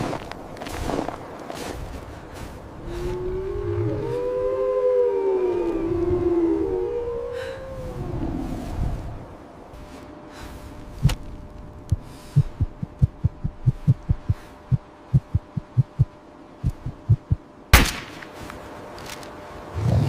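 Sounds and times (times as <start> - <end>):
faint steady hum: 0.0 - 20.0
low dull thuds: 11.0 - 17.5.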